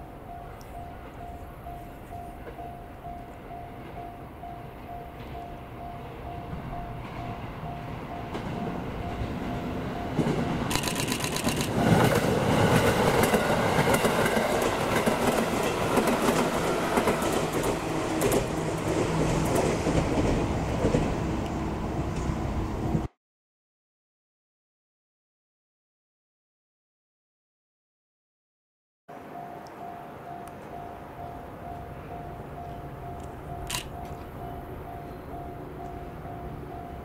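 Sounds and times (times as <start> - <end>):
faint pulsing tone: 0.0 - 10.7, 29.1 - 37.0
train passing close by: 0.0 - 23.1, 29.1 - 37.0
wheels clicking over rail joints: 10.1 - 21.1.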